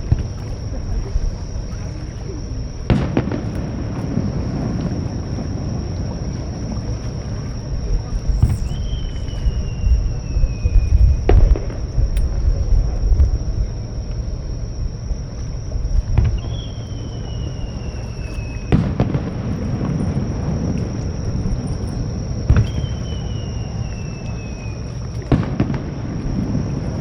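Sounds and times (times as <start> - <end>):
steady low rumble: 0.0 - 27.0
falling firework whistle: 2.9 - 5.5, 8.3 - 11.9, 16.2 - 27.0.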